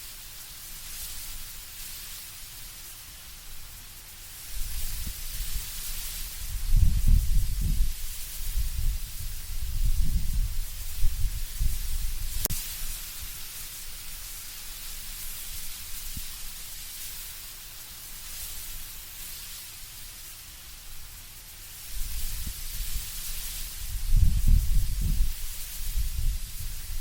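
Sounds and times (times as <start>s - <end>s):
wind rustling leaves: 0.0s - 27.0s
low gusty rumble: 4.5s - 12.5s, 23.7s - 27.0s.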